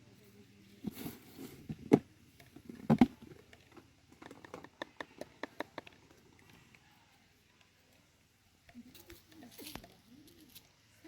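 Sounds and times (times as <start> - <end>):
sharp knocks and taps: 4.1 - 6.2.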